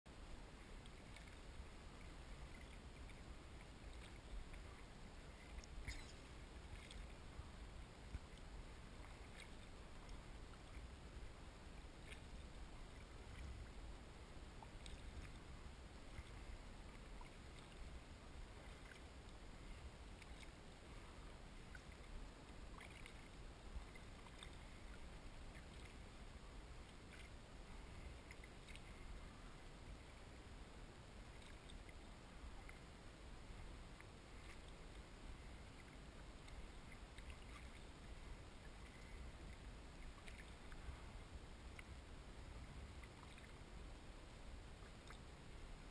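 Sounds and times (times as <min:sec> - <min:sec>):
low steady rumble: 0:00.1 - 0:45.9
paddle splashes and drips: 0:00.1 - 0:45.9.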